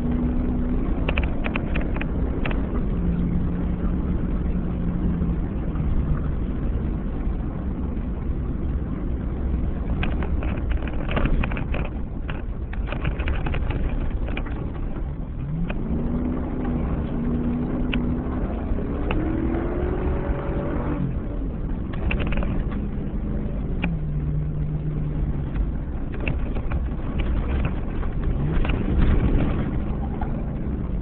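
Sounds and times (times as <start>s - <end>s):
gravel pinging against truck: 0.0s - 7.5s, 9.7s - 31.0s
truck engine and tyres rumbling: 0.0s - 31.0s
engine revving: 15.4s - 25.2s.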